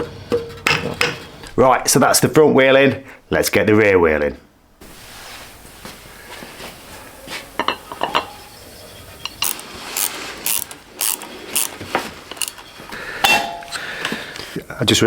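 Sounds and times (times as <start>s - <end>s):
socket ratchet rasping: 9.2s - 12.8s.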